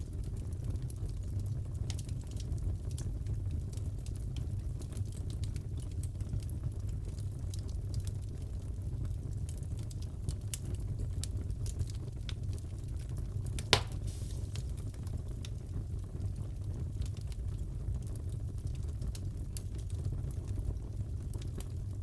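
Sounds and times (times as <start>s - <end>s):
fireplace fire crackling: 0.0s - 22.0s
loud pop from fire: 13.6s - 15.0s.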